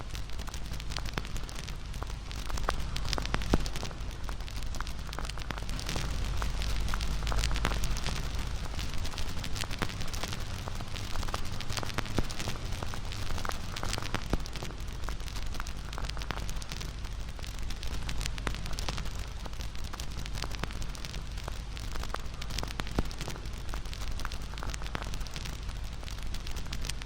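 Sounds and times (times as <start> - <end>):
campfire flames rumbling: 0.0 - 27.0
fire crackles and pops: 0.0 - 27.0.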